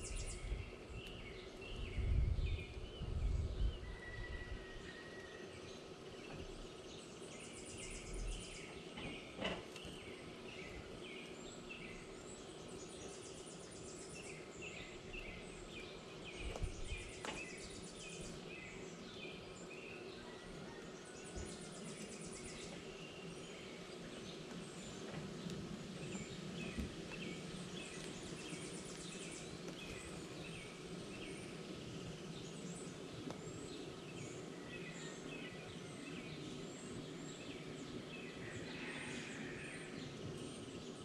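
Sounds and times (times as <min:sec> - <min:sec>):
wild birds chirping: 0:00.0 - 0:41.0.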